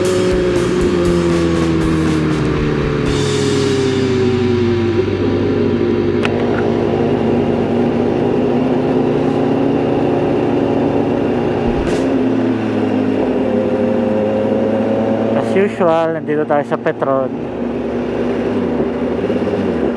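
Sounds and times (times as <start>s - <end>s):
motorcycle engine running: 0.0s - 19.9s
wind rush: 11.5s - 12.3s.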